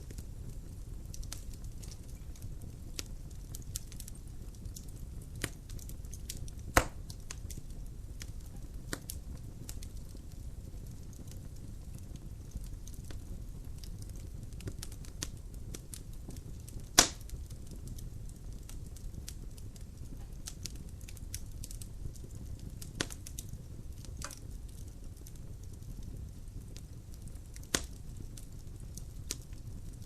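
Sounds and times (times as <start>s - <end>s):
logs burning in a fireplace: 0.0s - 30.0s
loud fire pop: 6.7s - 7.0s, 17.0s - 17.3s.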